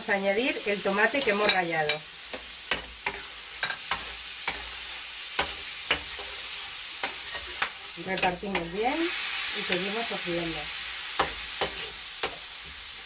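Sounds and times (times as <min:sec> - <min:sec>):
food sizzling in oil: 0:00.0 - 0:13.0
metal utensil scraping pan: 0:01.2 - 0:08.9.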